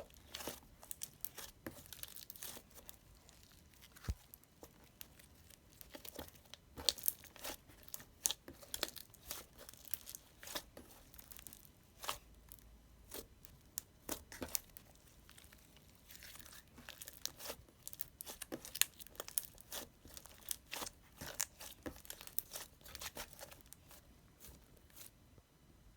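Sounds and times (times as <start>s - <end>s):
wrapping material crinkling: 13.2s - 25.2s.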